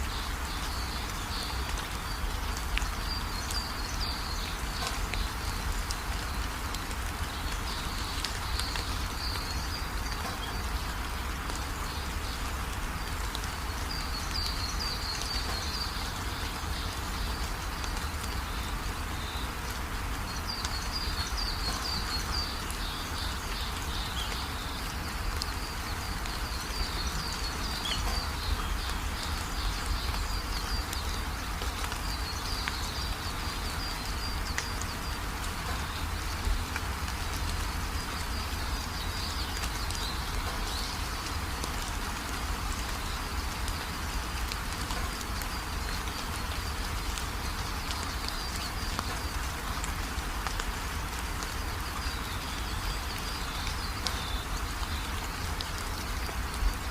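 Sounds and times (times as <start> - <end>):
steady rain falling: 0.0 - 56.9
birds chirping: 13.0 - 43.9.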